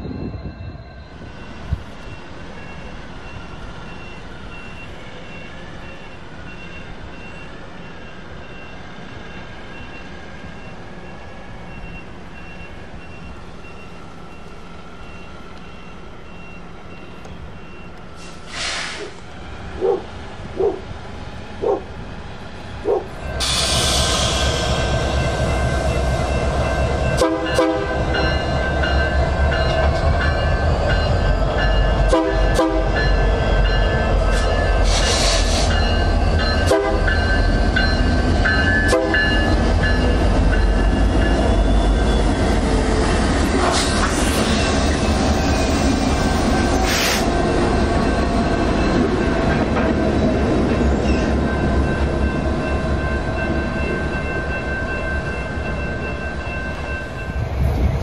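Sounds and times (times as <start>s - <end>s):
freight train rumbling past: 0.0s - 58.0s
locomotive horn blasts: 27.2s - 28.1s, 32.1s - 33.0s, 36.6s - 37.1s, 38.8s - 39.3s.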